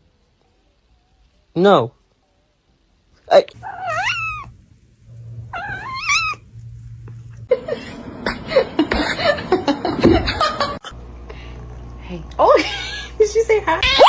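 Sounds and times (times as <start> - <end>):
cat meowing: 3.6 - 6.7, 13.8 - 14.0.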